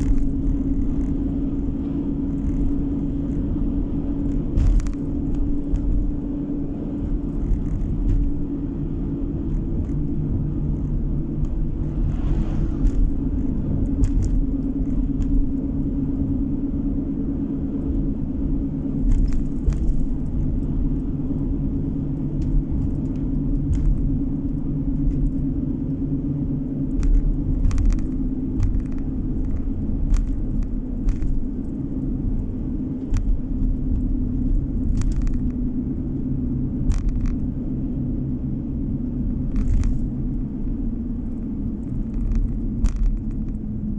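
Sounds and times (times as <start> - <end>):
car engine and tyre rumble: 0.0 - 43.9
road knocks and rattles: 0.0 - 43.9.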